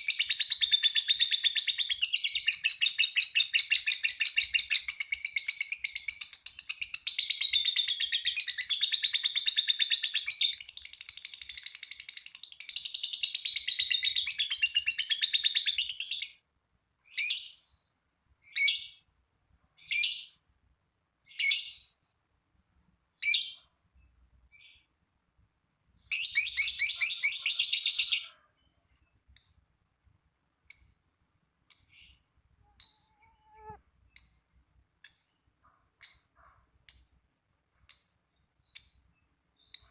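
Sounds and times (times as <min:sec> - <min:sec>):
short high bird chirps: 0:31.7 - 0:35.4
lovebird chattering trill: 0:32.8 - 0:35.4.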